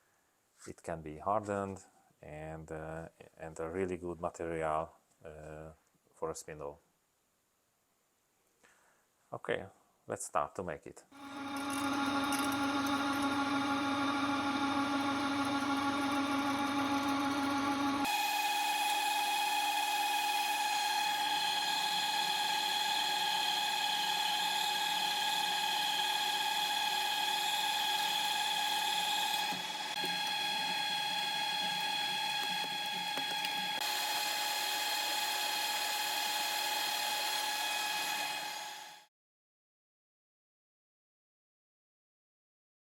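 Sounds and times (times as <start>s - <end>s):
machine tool whining: 11.2s - 39.0s.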